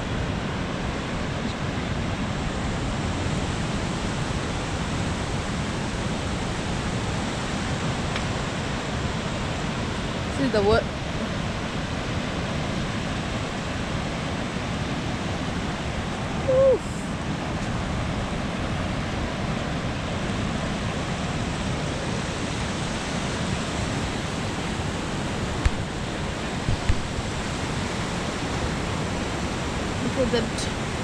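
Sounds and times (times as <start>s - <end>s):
surf washing on beach: 0.0s - 31.0s.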